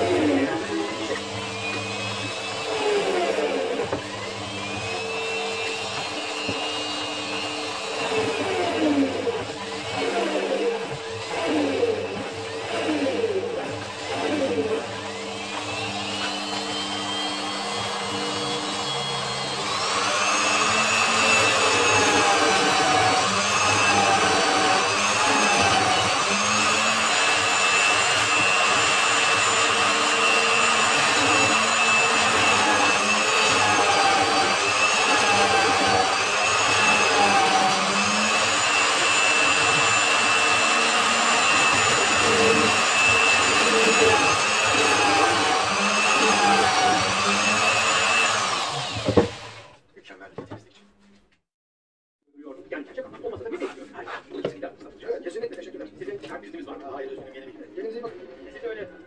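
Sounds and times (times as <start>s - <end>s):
power tool motor whining: 0.0s - 49.8s.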